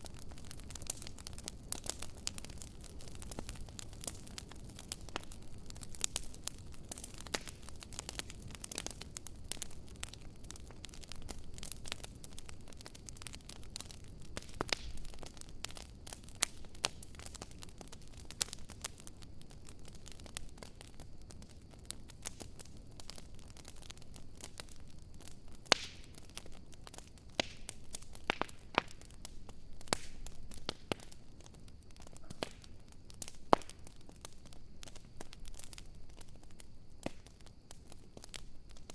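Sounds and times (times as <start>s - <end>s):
campfire crackling and popping: 0.0s - 38.9s
low steady hiss: 0.0s - 38.9s.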